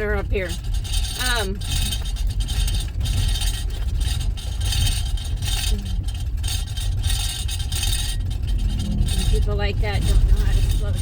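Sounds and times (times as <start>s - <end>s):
rattling and jostling: 0.0s - 11.0s
tyres and engine rumbling: 0.0s - 11.0s.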